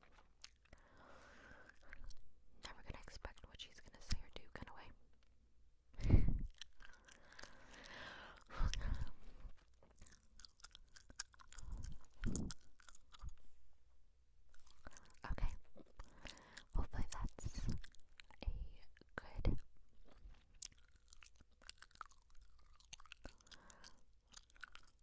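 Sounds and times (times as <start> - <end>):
gum chewing wet smacking: 0.1 - 2.3, 6.4 - 13.5, 14.5 - 25.0.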